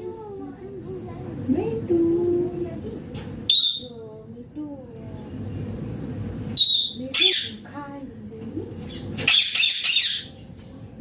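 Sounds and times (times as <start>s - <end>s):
parakeet squawking: 3.5s - 4.0s, 6.6s - 7.7s, 8.8s - 10.5s.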